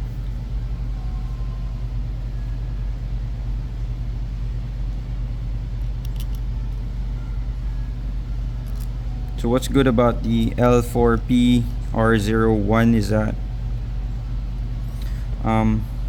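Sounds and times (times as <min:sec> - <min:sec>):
low background hum: 0:00.0 - 0:16.0
light clicks of small parts: 0:05.8 - 0:06.5, 0:08.6 - 0:09.4.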